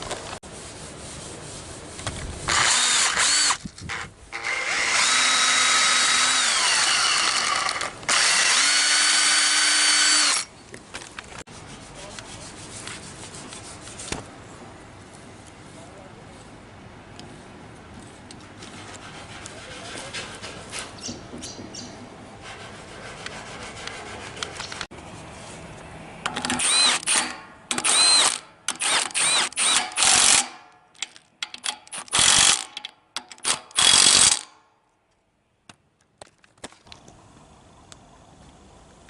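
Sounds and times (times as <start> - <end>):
electric drill whining: 2.5 - 10.5, 26.4 - 30.4.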